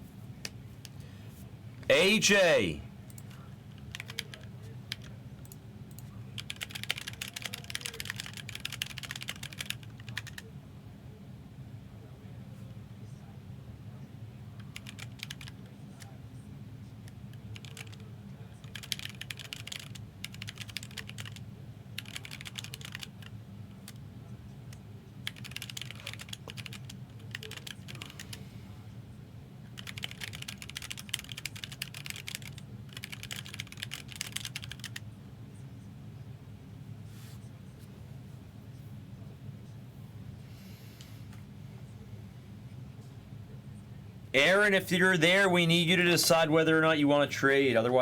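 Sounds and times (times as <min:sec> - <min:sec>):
computer keyboard typing: 0:03.9 - 0:05.1, 0:06.4 - 0:10.4, 0:14.8 - 0:15.5, 0:17.5 - 0:18.0, 0:18.6 - 0:21.4, 0:22.0 - 0:23.3, 0:25.2 - 0:28.2, 0:29.8 - 0:35.0.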